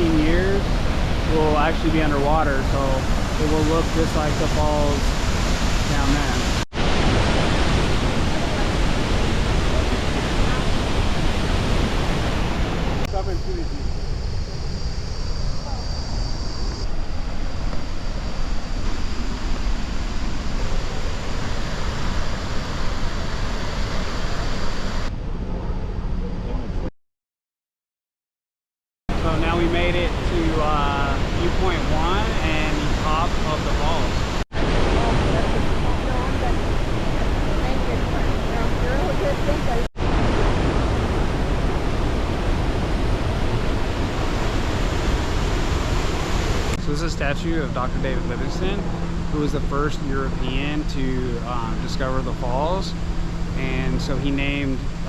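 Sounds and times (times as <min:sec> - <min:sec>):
waterfall roaring: 0:00.0 - 0:15.1, 0:29.1 - 0:55.0.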